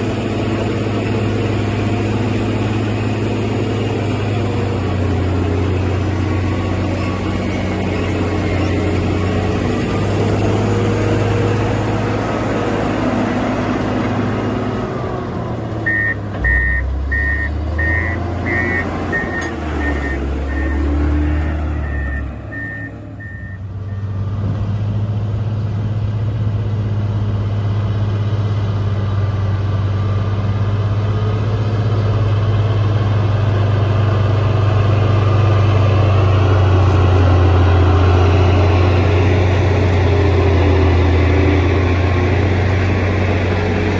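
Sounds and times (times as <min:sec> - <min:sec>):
diesel engine under load: 0:00.0 - 0:43.9
reversing alarm beeping: 0:15.8 - 0:24.2.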